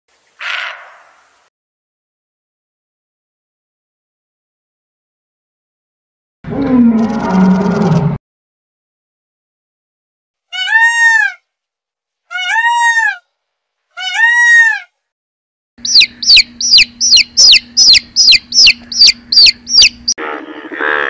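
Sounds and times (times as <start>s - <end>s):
peacock calling loudly: 0.4s - 1.2s, 10.5s - 11.4s, 12.3s - 13.3s, 14.0s - 14.9s, 15.8s - 20.9s
chicks peeping: 15.8s - 20.2s.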